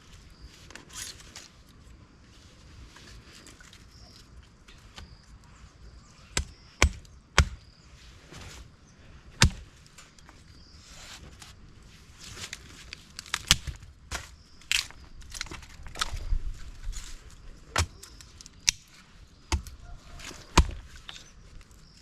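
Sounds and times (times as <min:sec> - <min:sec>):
chopping strikes on wood: 0:06.4 - 0:07.6, 0:09.4 - 0:09.7, 0:17.8 - 0:18.0, 0:19.5 - 0:19.8, 0:20.5 - 0:20.8.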